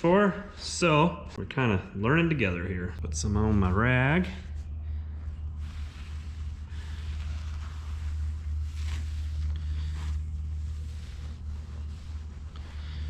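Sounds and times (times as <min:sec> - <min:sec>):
applicator pad rubbing: 0:05.7 - 0:13.0.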